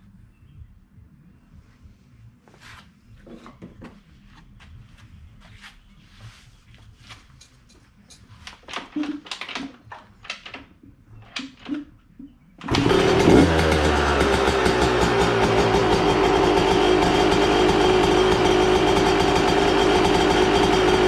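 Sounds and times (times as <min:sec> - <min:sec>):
clattering kick-start kicks: 0:12.6 - 0:21.0
dirt bike engine running loudly: 0:12.7 - 0:21.0.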